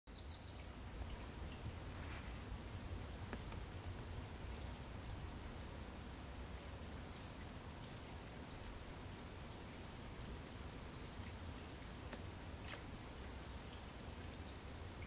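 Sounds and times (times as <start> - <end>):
faint forest rumble: 0.1 - 15.0
small bird chirping: 12.0 - 13.4.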